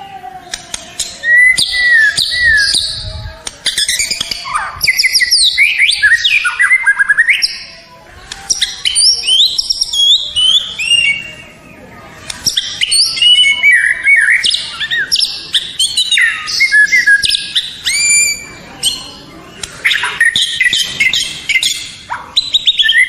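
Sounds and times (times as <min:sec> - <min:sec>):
bird singing whistles and trills: 0:00.0 - 0:07.8, 0:08.4 - 0:23.0.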